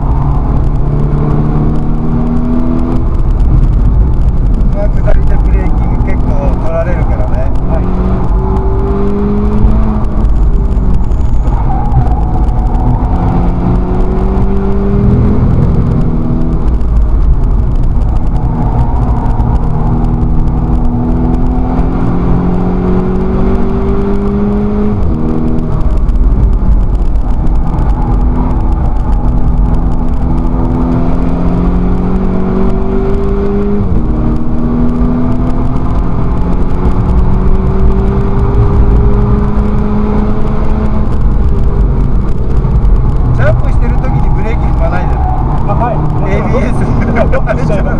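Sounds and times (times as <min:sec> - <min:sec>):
race car engine accelerating: 0:00.0 - 0:47.9
road and tyre noise: 0:00.0 - 0:47.9.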